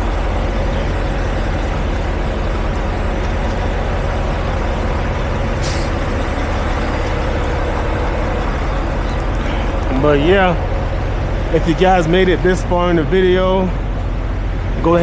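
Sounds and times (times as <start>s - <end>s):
diesel truck engine idling: 0.0s - 15.0s
air brake hiss: 5.6s - 6.0s.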